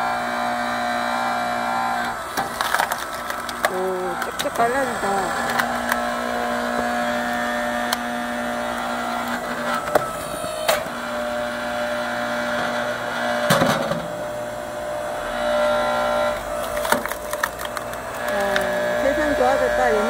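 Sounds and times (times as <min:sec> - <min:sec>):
log splitter motor running: 0:00.0 - 0:20.0
logs cracking as they split: 0:02.0 - 0:10.9, 0:16.4 - 0:19.1.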